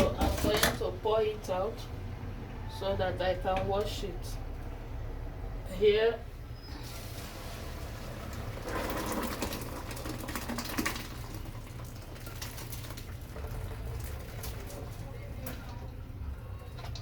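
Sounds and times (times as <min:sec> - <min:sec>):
water splashing from pot: 0:06.8 - 0:15.2
water trickling: 0:06.8 - 0:16.0.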